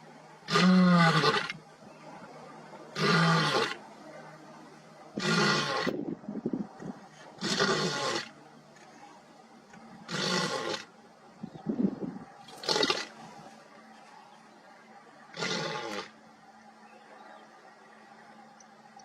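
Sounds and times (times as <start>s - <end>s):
lion roaring: 10.1s - 10.9s, 15.3s - 16.1s.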